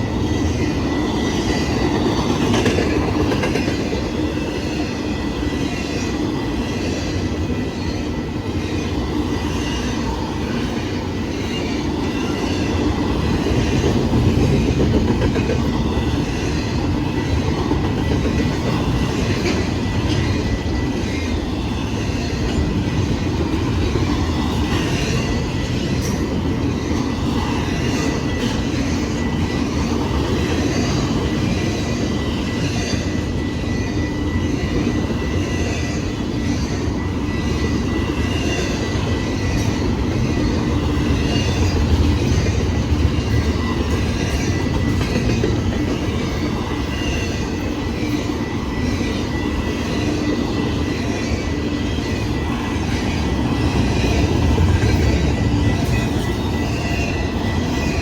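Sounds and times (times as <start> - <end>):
wheels clattering on rails: 0.0 - 4.8, 5.4 - 33.3, 34.7 - 51.5
train cars rumbling past: 0.0 - 58.0.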